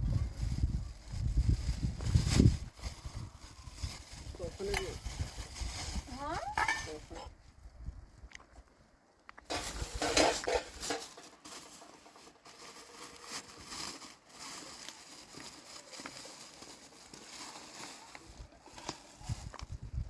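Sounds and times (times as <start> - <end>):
kitchenware clattering and rustling: 6.4 - 7.3, 9.5 - 12.8.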